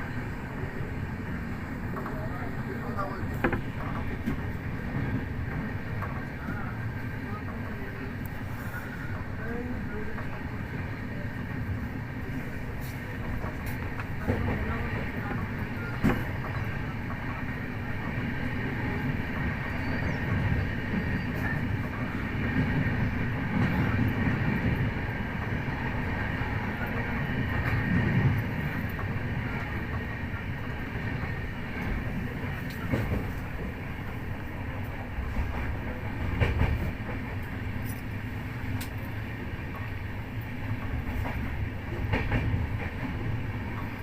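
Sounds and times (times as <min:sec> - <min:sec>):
train rumbling on rails: 0:00.0 - 0:44.0.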